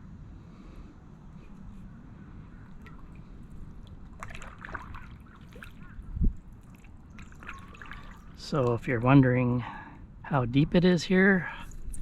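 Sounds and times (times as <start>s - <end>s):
low steady rumble: 0.0s - 12.0s
paddle sloshing in water: 2.6s - 8.8s
water trickling off paddle: 2.6s - 8.9s.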